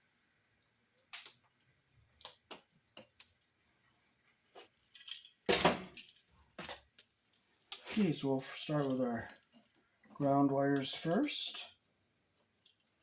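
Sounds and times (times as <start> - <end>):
hand tools and wires clicking: 1.0 - 3.6.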